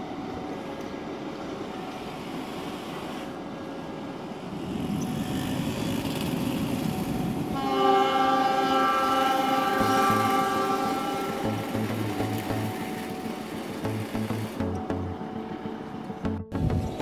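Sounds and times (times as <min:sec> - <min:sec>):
train rumbling along tracks: 0:00.0 - 0:17.0
held chord of tones: 0:07.8 - 0:17.0.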